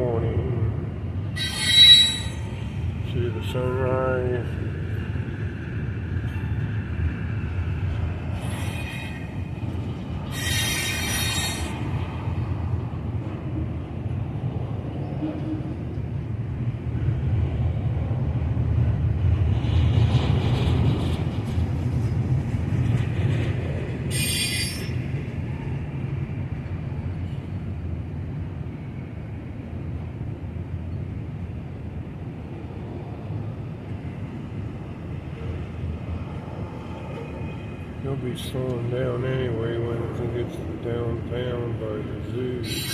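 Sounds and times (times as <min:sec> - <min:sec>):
freight train rumbling: 0:00.0 - 0:42.9
high wheel squeals: 0:01.3 - 0:02.8, 0:08.4 - 0:09.6, 0:10.2 - 0:11.9, 0:24.1 - 0:25.0, 0:42.6 - 0:42.9.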